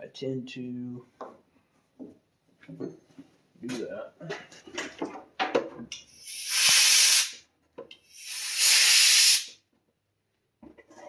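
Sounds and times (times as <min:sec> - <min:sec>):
pressurized spray hissing: 0:06.2 - 0:07.4, 0:08.1 - 0:09.5.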